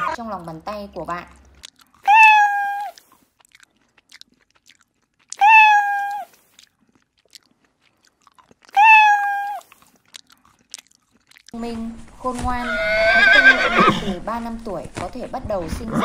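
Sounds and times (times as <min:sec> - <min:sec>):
kitten meowing: 0:02.0 - 0:03.0, 0:05.4 - 0:06.3, 0:08.8 - 0:09.7.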